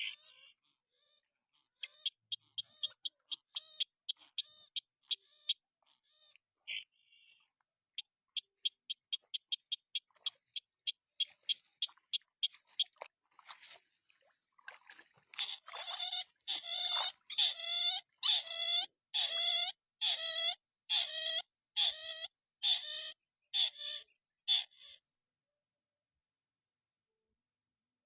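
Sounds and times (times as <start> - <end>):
crake calling: 0.0 - 7.4, 15.3 - 24.9.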